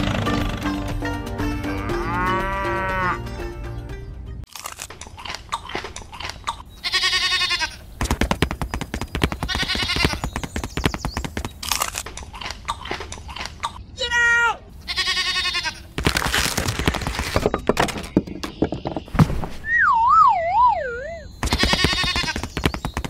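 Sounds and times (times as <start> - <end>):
music: 0.0 - 4.4
cow mooing: 1.6 - 3.2
sheep bleating: 1.6 - 3.2, 6.8 - 7.8, 14.8 - 15.9
crisp crunching clicks: 11.6 - 12.7, 16.0 - 17.3.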